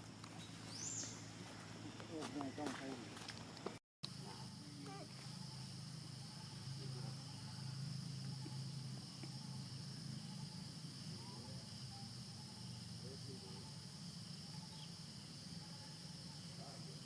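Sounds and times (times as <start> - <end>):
faint distant calls: 4.1 - 17.0
high-pitched insect drone: 4.1 - 17.0.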